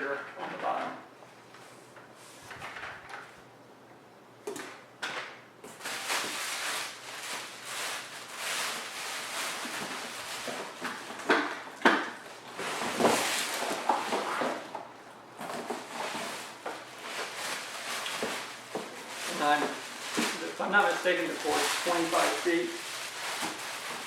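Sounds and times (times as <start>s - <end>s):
packaging rustling and scraping: 5.7s - 24.0s.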